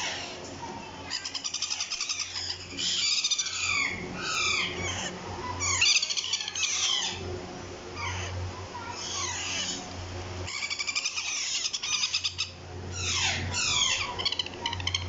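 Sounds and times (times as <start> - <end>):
parrot chicks chirping and squawking: 0.0 - 7.3, 7.9 - 15.0.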